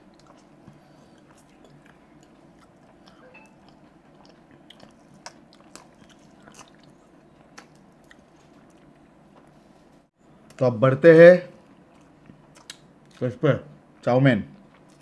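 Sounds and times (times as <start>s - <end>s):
wet chewing mouth sounds: 0.0s - 9.6s.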